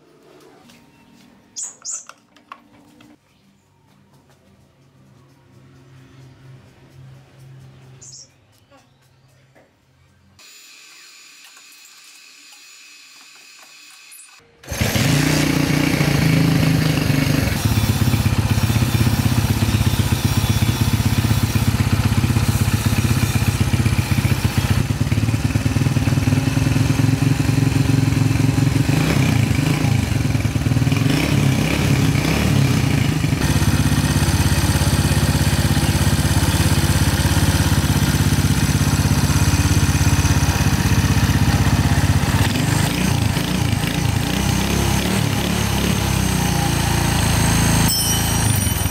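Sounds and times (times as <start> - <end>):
motorcycle engine running: 14.7 - 48.9.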